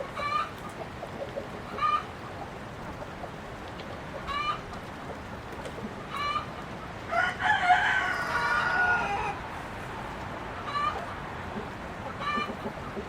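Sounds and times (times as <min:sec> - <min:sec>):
chickens clucking: 0:00.0 - 0:07.1, 0:07.9 - 0:13.0
rooster crowing: 0:07.1 - 0:09.4.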